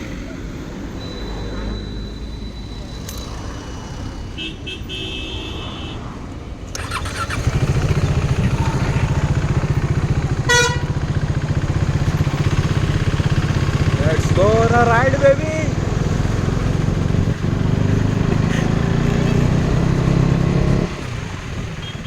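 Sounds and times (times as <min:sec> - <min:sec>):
motorcycle engine idling: 0:06.7 - 0:22.0
short horn beep: 0:10.4 - 0:11.2.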